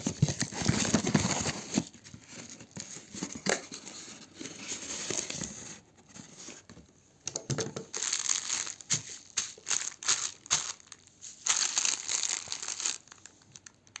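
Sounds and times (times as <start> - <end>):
plastic packaging crinkling: 0.0 - 5.3, 7.8 - 14.0.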